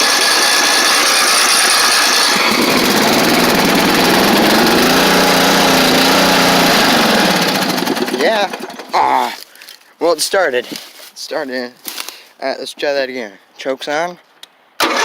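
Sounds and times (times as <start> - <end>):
electric starter whining: 0.0 - 9.2, 14.8 - 15.0
engine running unevenly: 0.0 - 9.2.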